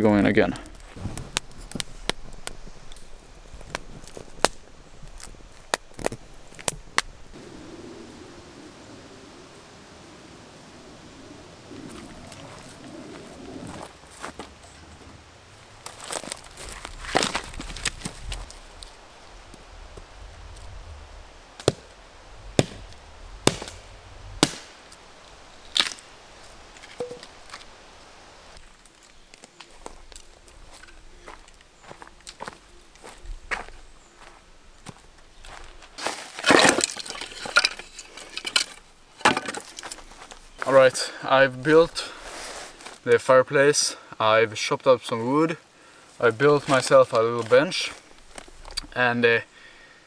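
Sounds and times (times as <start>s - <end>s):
dry wood snapping and cracking: 0.5s - 7.4s, 15.8s - 28.0s, 35.5s - 40.4s
axe chopping wood: 21.6s - 21.9s, 22.6s - 24.8s.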